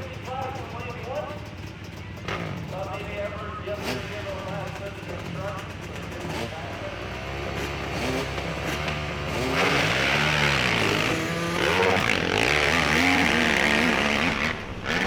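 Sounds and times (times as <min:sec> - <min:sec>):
motorcycle engine revving hard: 0:06.1 - 0:15.0.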